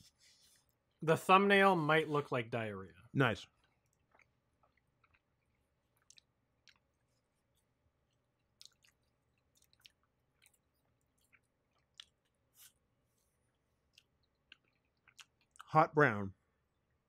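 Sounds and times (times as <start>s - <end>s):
chewing mouth clicks: 3.6s - 7.2s, 8.1s - 12.8s, 13.5s - 15.7s.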